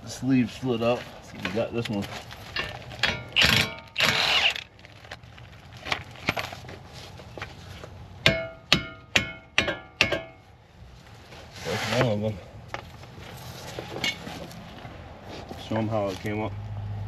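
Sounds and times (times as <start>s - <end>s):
metal parts scraping: 2.4s - 5.1s
metallic clanks: 2.5s - 4.2s.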